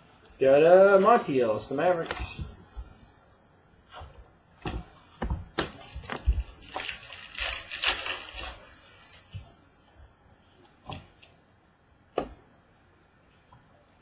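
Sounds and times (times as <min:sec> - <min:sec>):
wrapper crinkling: 0:05.7 - 0:09.3.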